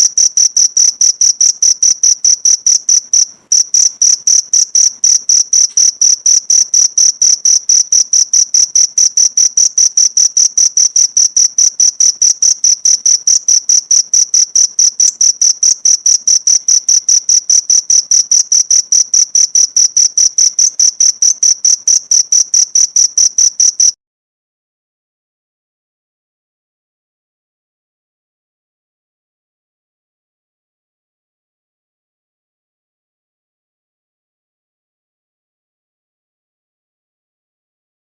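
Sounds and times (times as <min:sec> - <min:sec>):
cricket chirping: 0:00.0 - 0:24.0.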